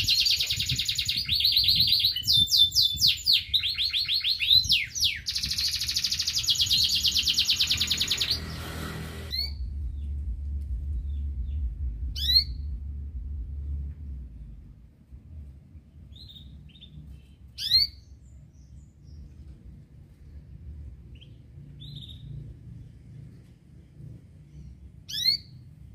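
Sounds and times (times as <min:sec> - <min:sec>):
canary trilling song: 0:00.0 - 0:10.2, 0:11.0 - 0:12.7, 0:16.0 - 0:19.3, 0:21.0 - 0:22.6, 0:24.5 - 0:25.9
low rumble: 0:04.6 - 0:17.6, 0:18.2 - 0:25.9.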